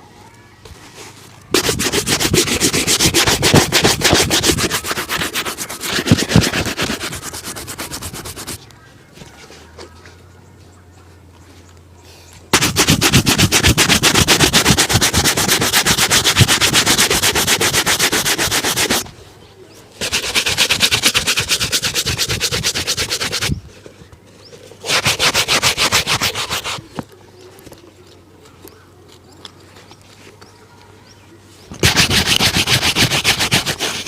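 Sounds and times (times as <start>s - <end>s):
shoe being buffed: 1.5s - 8.6s, 12.5s - 19.1s, 20.0s - 23.6s, 24.8s - 26.8s, 31.8s - 34.0s.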